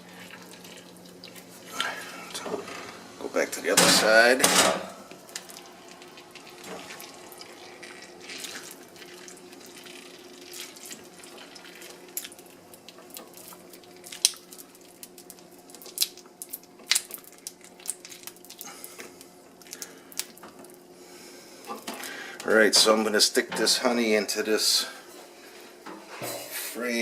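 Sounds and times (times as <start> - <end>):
wax crackling and dripping: 0.0 - 2.4, 5.1 - 20.9
faint steady hum: 0.0 - 27.0.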